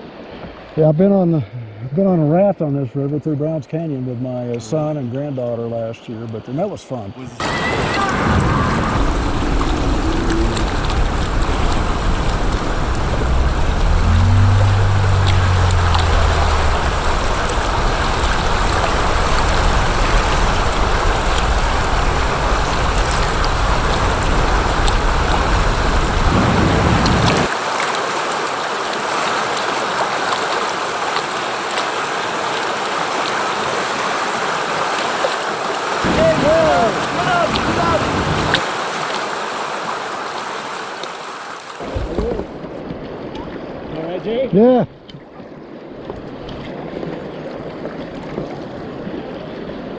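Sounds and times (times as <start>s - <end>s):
heavy low rumble: 7.4s - 27.5s
river water splashing: 7.4s - 43.8s.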